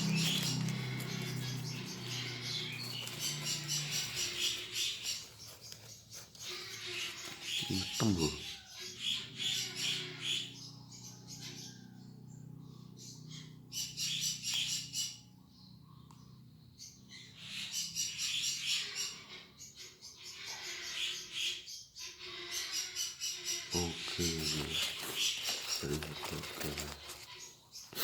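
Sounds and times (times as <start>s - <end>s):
small birds chirping trills: 0.0s - 28.0s.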